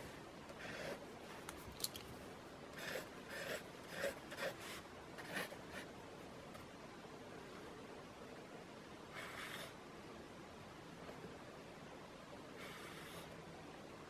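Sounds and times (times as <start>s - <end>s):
pen scratching on paper: 0.5s - 1.0s, 2.7s - 5.9s, 9.1s - 9.8s, 12.6s - 13.3s.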